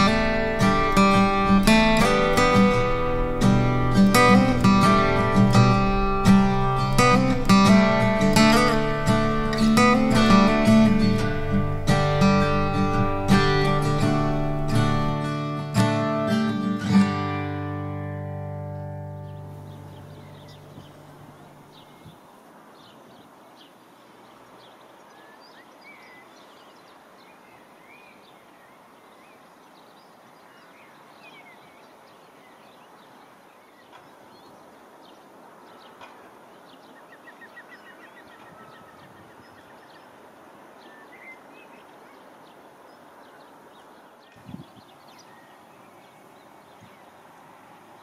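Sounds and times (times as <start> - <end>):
faint open air background: 0.0 - 48.0
songbirds chirping: 0.0 - 48.0
bird trill: 18.4 - 22.2, 36.7 - 40.2.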